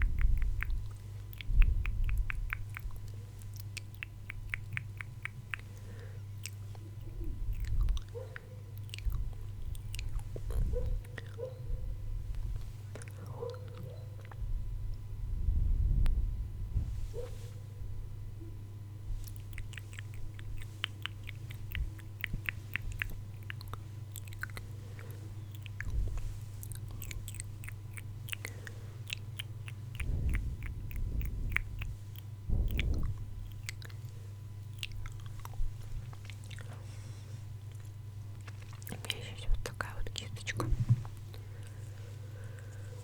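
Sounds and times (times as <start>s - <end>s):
wet mouth clicks and smacks: 0.0s - 11.4s, 19.2s - 36.8s, 37.6s - 41.8s
steady low hum: 0.0s - 43.0s
soft low thumps: 14.4s - 17.2s, 29.8s - 33.9s.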